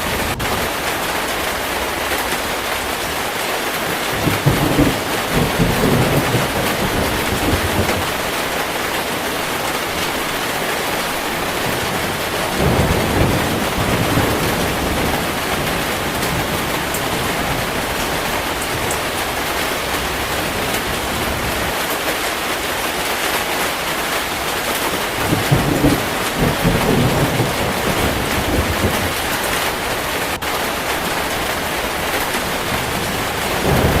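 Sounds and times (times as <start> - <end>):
heavy rain falling: 0.0 - 34.0
low rolls of thunder: 3.9 - 21.8, 25.0 - 34.0.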